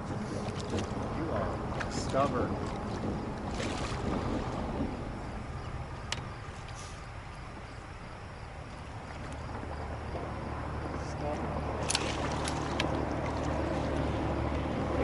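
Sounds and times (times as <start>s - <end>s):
wind and water rumble: 0.0s - 15.0s.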